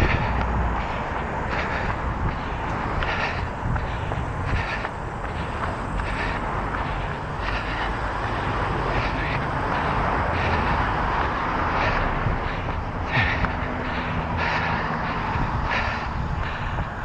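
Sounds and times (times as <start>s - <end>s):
road traffic passing: 0.0s - 17.0s
runner breathing hard: 0.0s - 17.0s.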